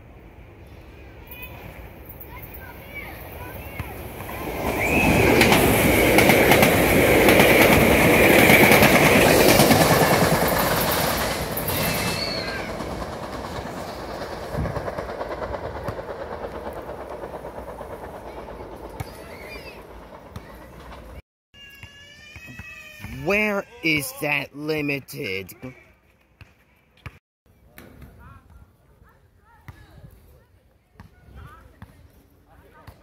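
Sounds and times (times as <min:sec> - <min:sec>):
train wheels rumbling over rail joints: 0:04.1 - 0:21.2.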